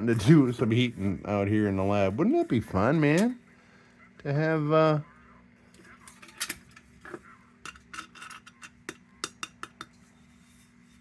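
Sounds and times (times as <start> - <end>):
faint steady hum: 0.0 - 11.0
metal parts clinking and tapping: 7.7 - 10.0.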